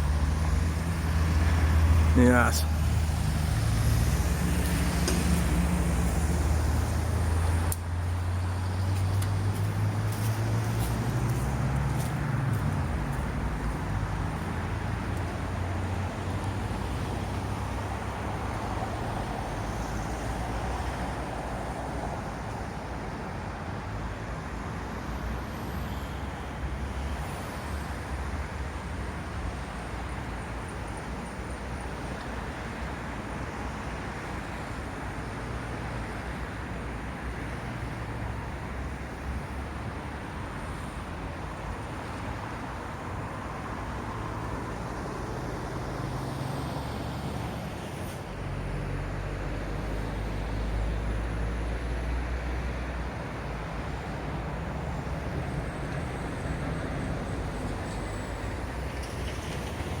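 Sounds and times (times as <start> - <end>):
heavy vehicle passing: 0.0 - 21.7
road traffic rumble: 0.0 - 60.0.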